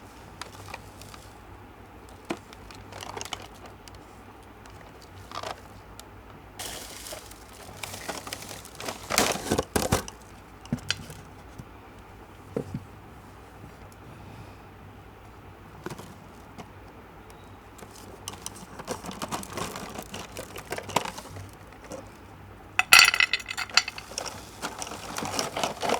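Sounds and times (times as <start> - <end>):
candy wrappers crinkling and tearing: 6.6 - 9.8, 23.3 - 25.9.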